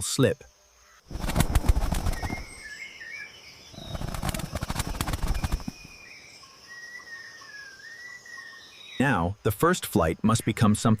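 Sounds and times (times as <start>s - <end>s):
faint bird chirps: 0.0s - 9.5s
bird wings flapping: 1.1s - 2.6s, 3.8s - 5.9s.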